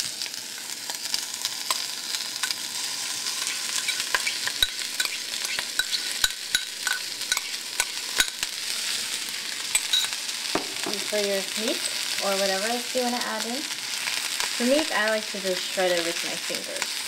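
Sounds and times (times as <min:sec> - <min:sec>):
vegetables sizzling in a frying pan: 0:00.0 - 0:17.0
spoon scraping a bowl: 0:03.5 - 0:08.5, 0:09.7 - 0:10.2.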